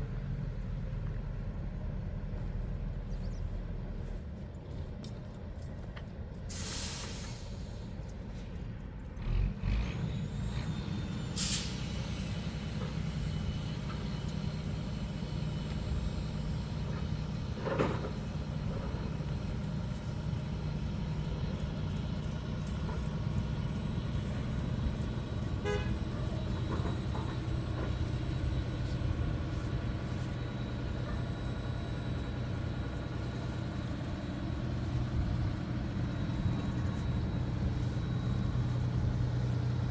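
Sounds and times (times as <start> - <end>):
heavy diesel engine running: 0.0 - 39.9
air hiss: 6.5 - 7.8, 11.4 - 11.9.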